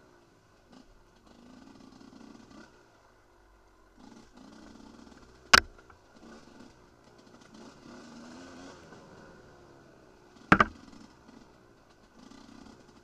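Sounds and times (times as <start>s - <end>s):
motorcycle engine revving: 0.7s - 3.2s, 3.9s - 13.0s
sharp loud knocks: 5.6s - 6.0s, 10.5s - 10.9s.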